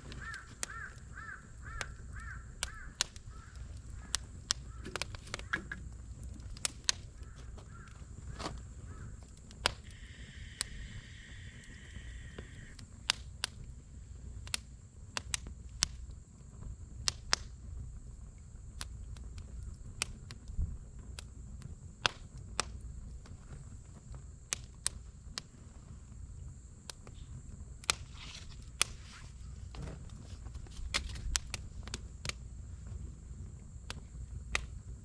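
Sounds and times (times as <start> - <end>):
campfire crackling and popping: 0.0 - 35.0
low rumble of burning: 0.0 - 35.0.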